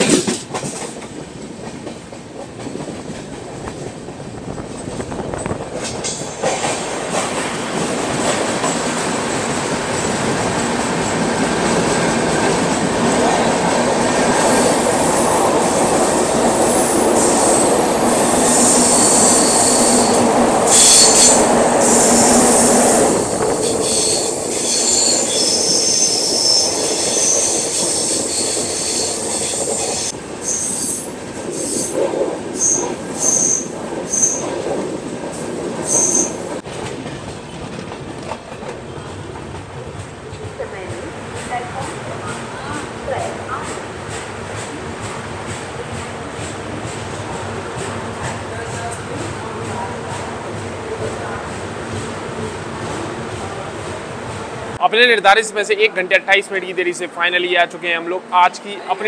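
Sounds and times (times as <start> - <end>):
rumble of train wheels on rail: 0.0 - 54.8
high-pitched wheel squeal: 16.6 - 32.0, 32.6 - 34.5, 35.9 - 36.4.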